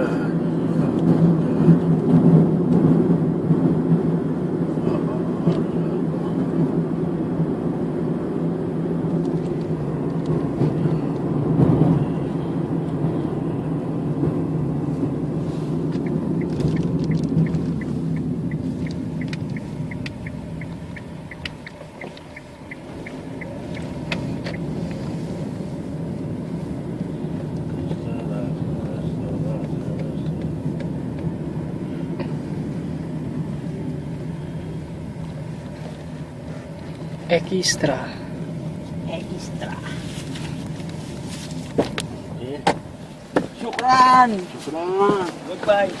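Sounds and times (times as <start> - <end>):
vehicle rumble from inside: 0.0 - 46.0
regular ticking: 15.9 - 24.8.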